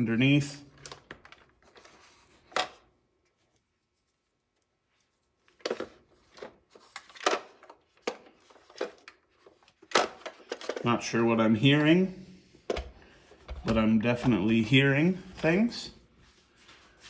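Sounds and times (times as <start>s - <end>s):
toy truck clicks and rattles: 9.8s - 10.9s.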